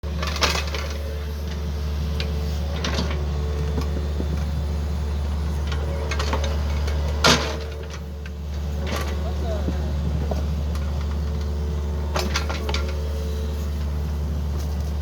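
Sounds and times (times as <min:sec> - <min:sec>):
excavator diesel engine running: 0:00.0 - 0:15.0
excavator bucket clanks and knocks: 0:00.1 - 0:04.5, 0:05.7 - 0:11.5, 0:12.1 - 0:13.0.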